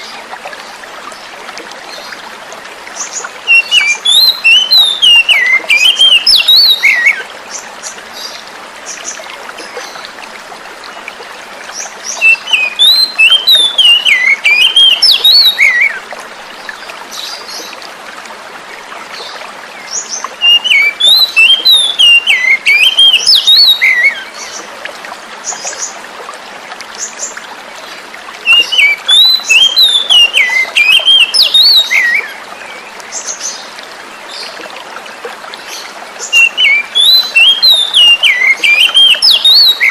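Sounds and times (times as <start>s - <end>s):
flowing water hiss: 0.0s - 39.9s
bird whistled song: 3.5s - 7.2s, 12.2s - 16.0s, 20.4s - 24.3s, 28.5s - 32.4s, 36.3s - 39.9s.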